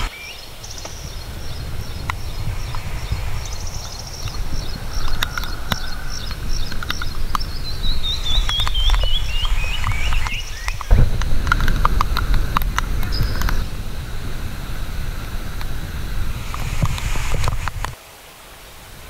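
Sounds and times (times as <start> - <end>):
bird singing repeated notes: 0.0 - 17.8
low steady rumble: 0.0 - 18.0
sharp thump: 10.7 - 14.4.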